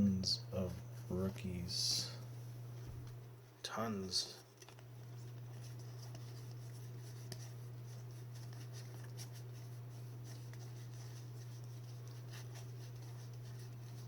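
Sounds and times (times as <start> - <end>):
steady low hum: 0.0 - 14.0
faint clicks and rustles: 2.8 - 14.0.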